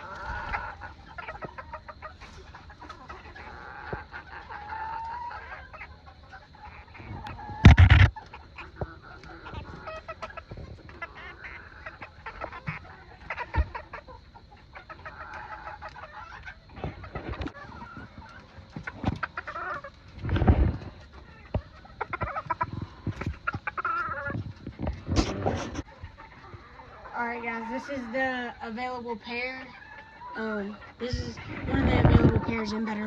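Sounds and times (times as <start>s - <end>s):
chickens clucking: 0.0s - 33.0s.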